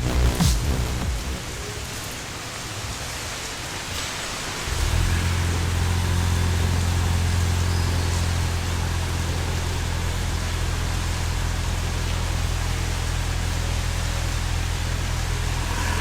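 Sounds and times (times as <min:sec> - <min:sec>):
car engine idling: 0:04.7 - 0:16.0.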